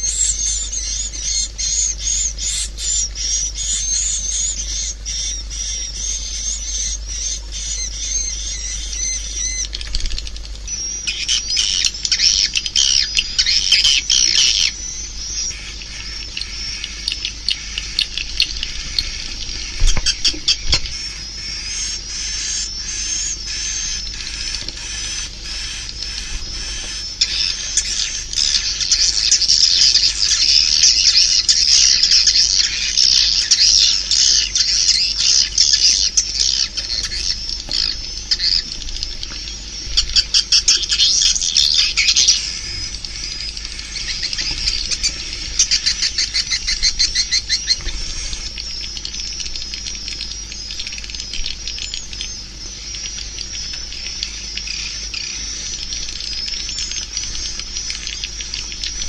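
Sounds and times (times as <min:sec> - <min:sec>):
swiftlets twittering: 0:00.0 - 0:59.0.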